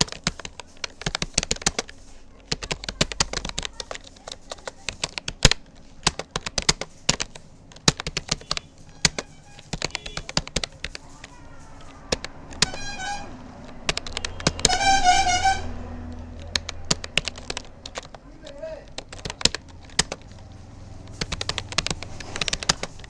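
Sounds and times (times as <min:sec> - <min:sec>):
keyboard key clicks: 0:00.0 - 0:23.0
wavering horn-like tone: 0:12.6 - 0:16.4.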